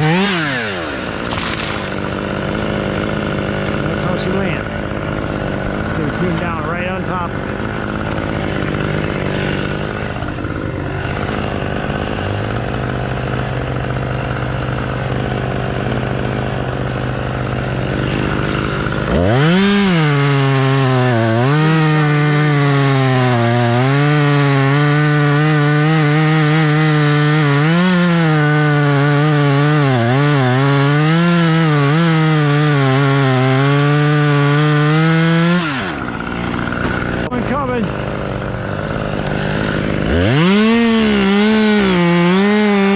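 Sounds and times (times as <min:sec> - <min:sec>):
chainsaw cutting wood: 0:00.0 - 0:42.9
chainsaw idling and revving: 0:00.0 - 0:42.9.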